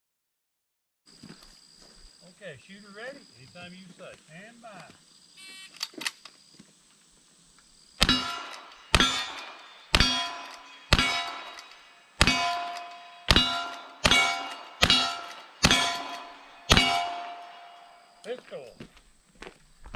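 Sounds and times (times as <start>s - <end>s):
gunshots: 8.0s - 18.0s
steel target clanging: 8.0s - 18.3s.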